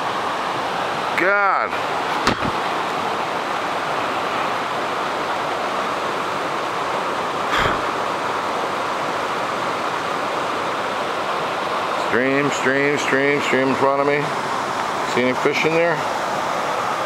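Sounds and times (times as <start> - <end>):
waterfall rushing: 0.0 - 17.0
brief knock: 2.2 - 2.6.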